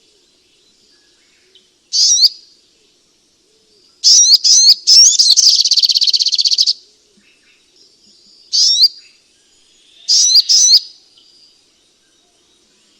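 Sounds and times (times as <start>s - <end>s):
bird chirps: 0.0s - 2.5s, 3.8s - 12.9s
bird chattering trill: 4.1s - 6.7s, 8.6s - 8.9s, 10.1s - 10.8s.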